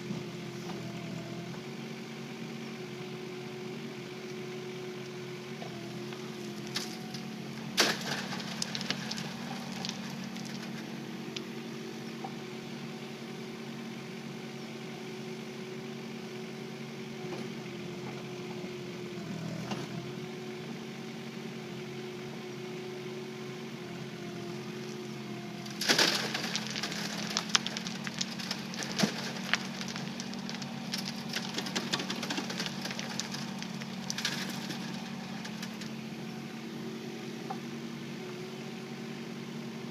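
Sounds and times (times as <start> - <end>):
excavator diesel engine running: 0.0 - 39.9
stony soil rattling through screen: 6.1 - 11.5, 25.6 - 36.1.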